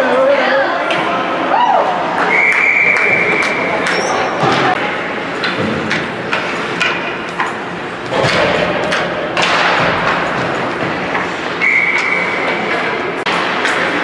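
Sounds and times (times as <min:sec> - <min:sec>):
crowd noise: 0:00.0 - 0:14.0
echoing thuds and knocks: 0:08.0 - 0:11.3.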